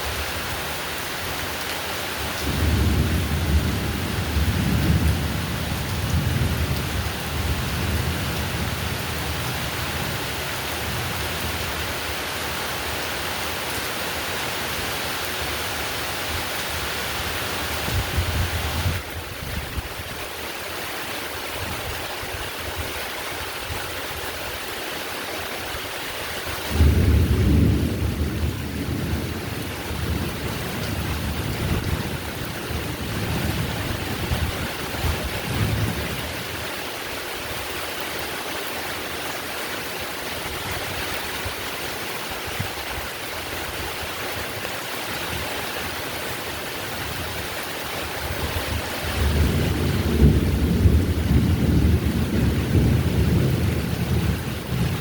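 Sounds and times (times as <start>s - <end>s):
heavy rain: 0.0s - 55.0s
thunder rumble: 26.7s - 36.3s, 48.2s - 55.0s.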